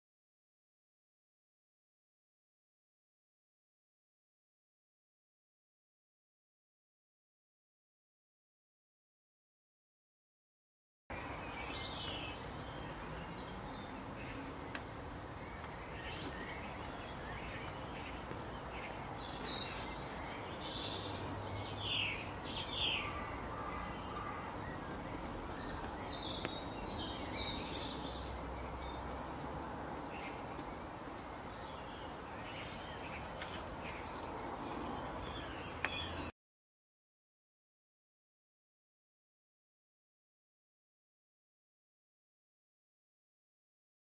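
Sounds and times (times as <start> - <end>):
birds chirping: 11.1 - 36.3
outdoor background hiss: 11.1 - 36.3.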